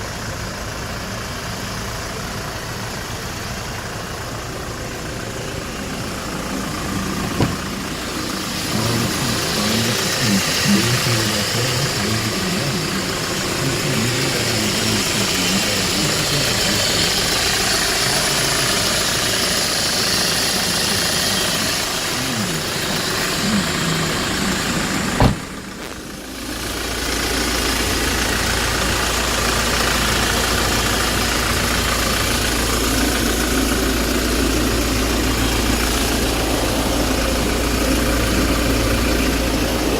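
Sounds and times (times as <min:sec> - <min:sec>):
truck engine idling: 0:00.0 - 0:39.9
deep steady hum: 0:04.1 - 0:39.9
sharp knock: 0:25.2 - 0:25.5.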